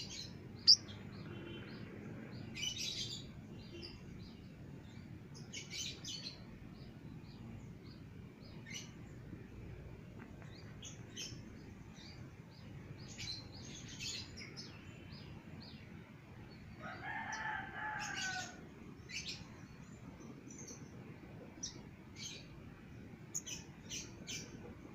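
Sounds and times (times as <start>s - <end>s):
sunbird chirps and trills: 0.0s - 9.7s, 10.4s - 24.9s
rooster crowing: 16.8s - 18.6s.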